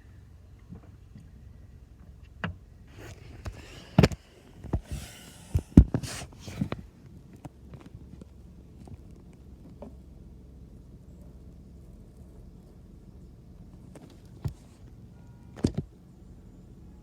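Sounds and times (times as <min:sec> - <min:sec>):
towels rubbing and wiping car: 0:02.9 - 0:06.9.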